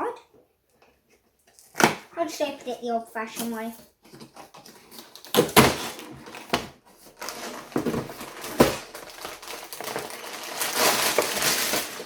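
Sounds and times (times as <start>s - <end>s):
packaging crinkling: 4.9s - 12.0s
cardboard box being torn open: 5.0s - 12.0s.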